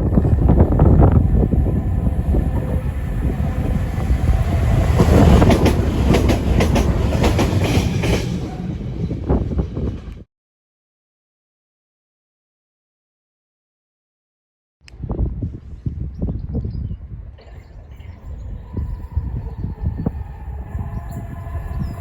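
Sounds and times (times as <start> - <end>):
train wheels rumbling on rails: 0.0 - 10.3, 18.1 - 22.0.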